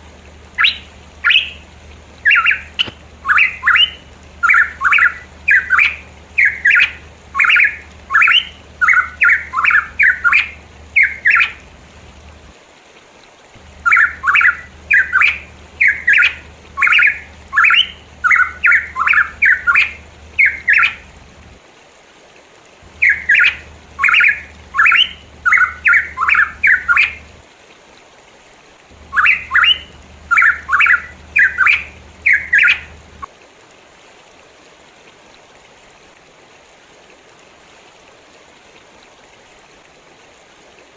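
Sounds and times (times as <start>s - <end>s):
bird calling quick repeated notes: 0.5s - 11.7s, 13.8s - 21.1s, 22.9s - 27.3s, 29.0s - 33.3s.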